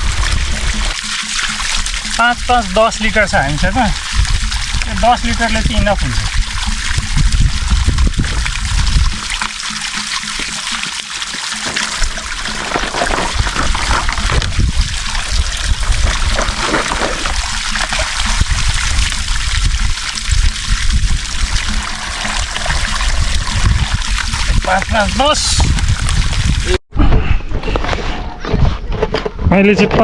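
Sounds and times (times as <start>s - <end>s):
water pouring into plastic jerrycan: 0.0s - 26.8s.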